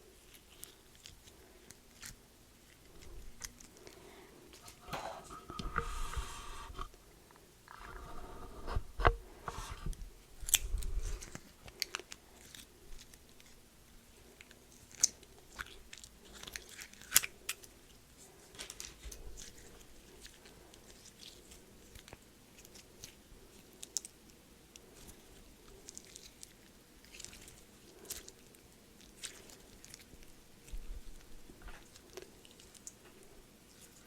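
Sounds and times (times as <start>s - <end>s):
crunchy chewing of a snack: 0.0s - 4.9s, 10.4s - 34.0s.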